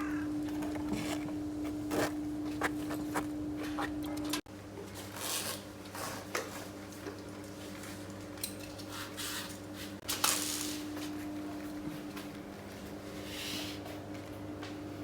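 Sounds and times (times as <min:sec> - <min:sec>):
steady low hum: 0:00.0 - 0:04.5.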